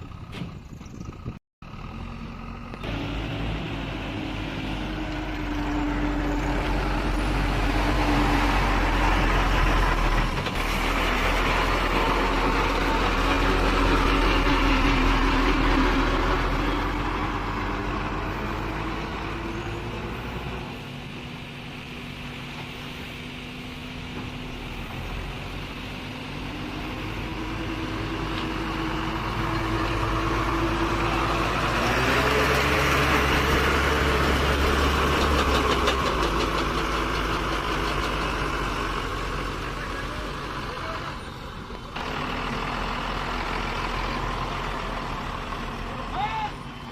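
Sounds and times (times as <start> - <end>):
diesel engine working: 0.0 - 46.9.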